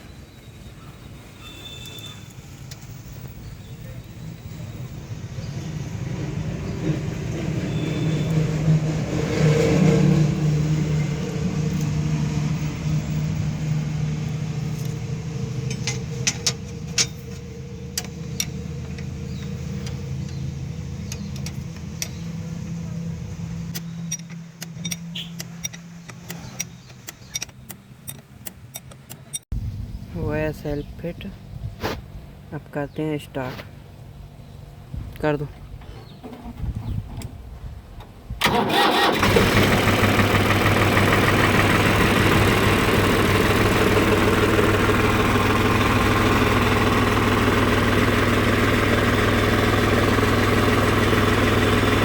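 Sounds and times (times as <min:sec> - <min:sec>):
vehicle engine running: 0:02.6 - 0:28.4, 0:38.4 - 0:52.0.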